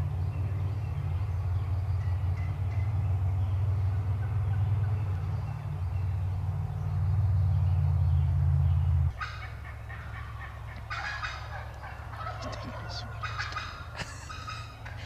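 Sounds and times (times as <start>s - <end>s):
turkey gobbling: 9.1s - 15.0s.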